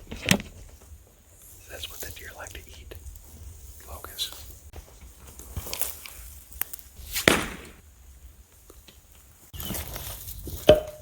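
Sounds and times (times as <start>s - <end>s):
brush rustling: 0.5s - 7.8s
twigs and branches snapping: 5.3s - 7.8s.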